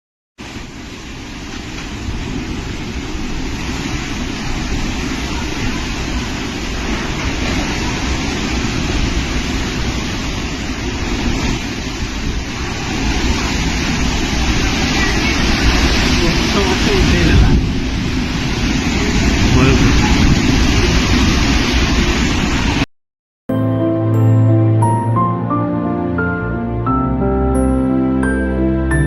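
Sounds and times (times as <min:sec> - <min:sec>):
rushing storm noise: 0:00.4 - 0:22.9.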